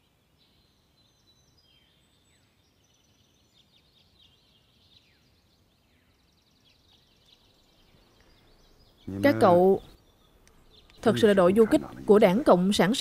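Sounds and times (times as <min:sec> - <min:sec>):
faint birdsong: 0:00.0 - 0:13.0.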